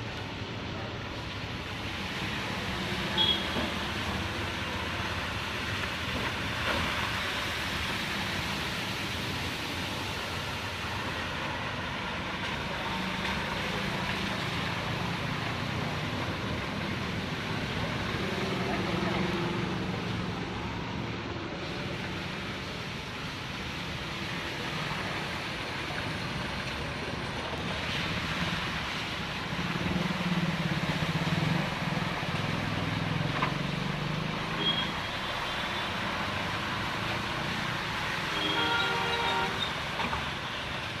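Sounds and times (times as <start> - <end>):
passing vehicles humming: 0.0 - 41.0
rain hiss on road: 0.0 - 41.0
car horn honking: 3.2 - 3.6, 38.4 - 39.6.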